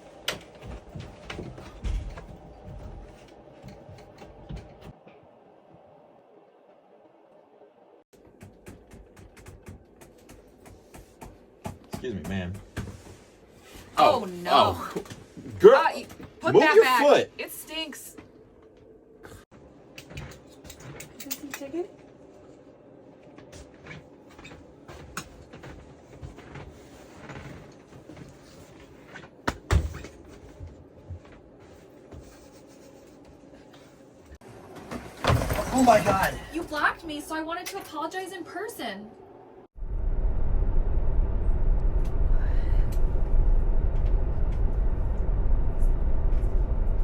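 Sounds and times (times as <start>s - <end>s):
airliner cabin rumble: 39.7s - 47.0s.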